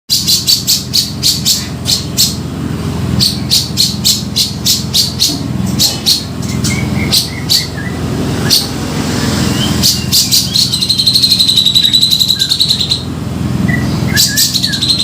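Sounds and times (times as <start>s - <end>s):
bird calling harsh high notes: 3.2s - 15.0s
bird whistled notes: 6.1s - 13.0s, 13.7s - 15.0s.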